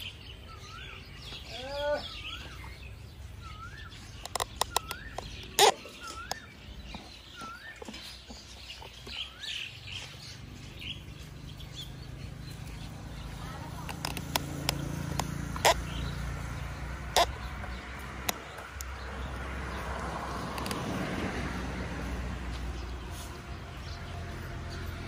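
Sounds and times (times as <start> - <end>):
bird whistling: 3.4 - 8.0
sharp clicks: 4.2 - 6.5, 13.8 - 16.2, 17.1 - 19.0, 20.5 - 20.9.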